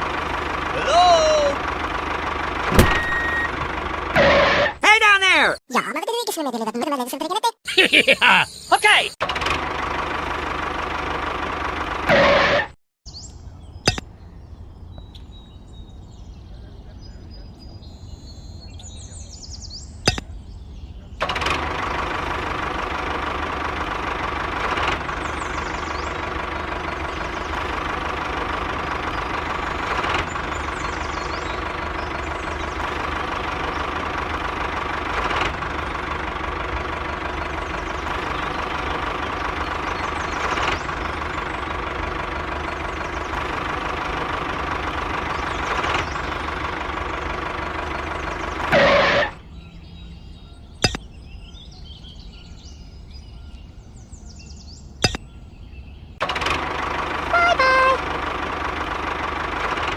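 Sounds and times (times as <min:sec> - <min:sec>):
sharp click: 0:50.8 - 0:51.1, 0:55.0 - 0:55.3.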